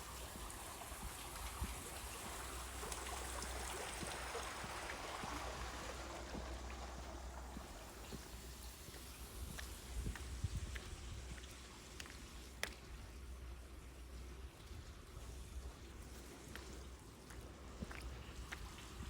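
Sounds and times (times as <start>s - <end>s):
stream water rushing: 0.0s - 9.0s
wind rumble on microphone: 0.0s - 11.6s.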